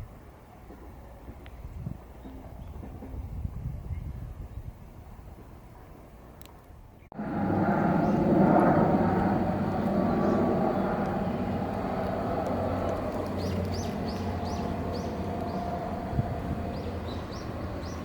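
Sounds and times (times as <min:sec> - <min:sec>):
passing vehicle rumble: 0:07.1 - 0:18.0
birds chirping: 0:07.7 - 0:18.0.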